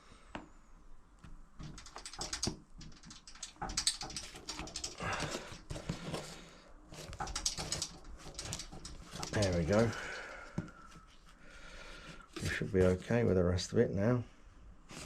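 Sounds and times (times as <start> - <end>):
decal rustling and rubbing: 1.6 - 13.6.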